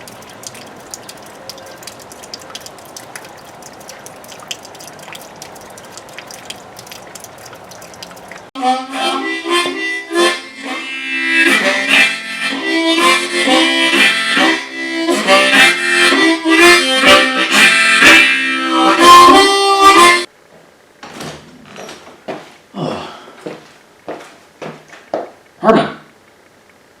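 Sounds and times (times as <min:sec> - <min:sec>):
harmonica playing: 0:08.6 - 0:20.3.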